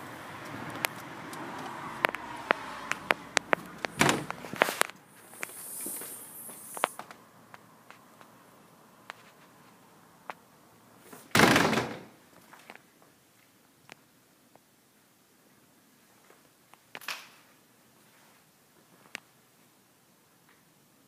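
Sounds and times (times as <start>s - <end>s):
footsteps: 0.4s - 8.4s
door clicks and knocks: 3.9s - 4.4s.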